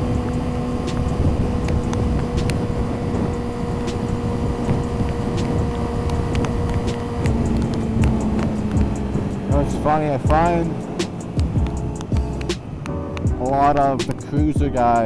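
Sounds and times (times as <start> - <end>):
low wind rumble: 0.0 - 15.0
motorcycle engine cruising: 0.0 - 15.0
sharp ticks on microphone: 0.1 - 12.6.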